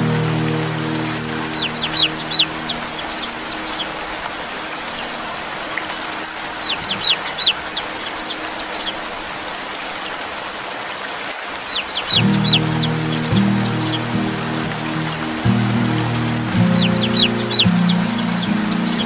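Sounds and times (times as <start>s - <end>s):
steady rain: 0.0s - 19.0s
chick peeping: 1.5s - 4.0s, 6.6s - 9.0s, 11.6s - 14.0s, 16.7s - 19.0s.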